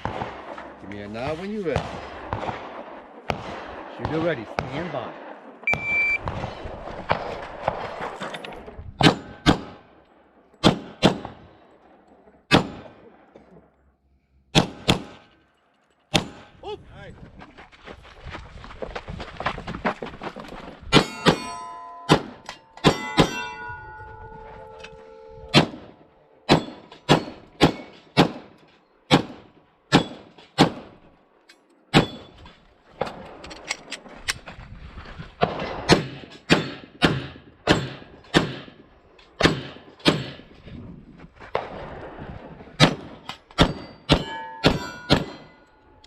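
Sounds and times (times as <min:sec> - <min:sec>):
steel plates ringing: 0:21.0 - 0:25.6, 0:43.6 - 0:46.0.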